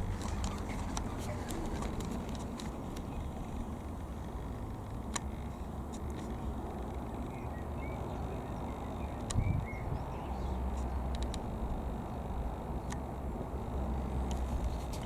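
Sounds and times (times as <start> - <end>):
steady low rumble: 0.0 - 15.0
sharp clicks: 3.9 - 8.1, 8.7 - 9.7, 10.7 - 12.1.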